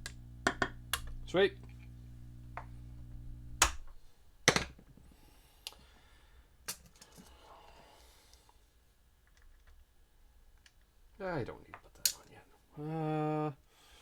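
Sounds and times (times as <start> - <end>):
guitar amplifier hum: 0.0 - 4.0
loud clicks: 3.5 - 4.0.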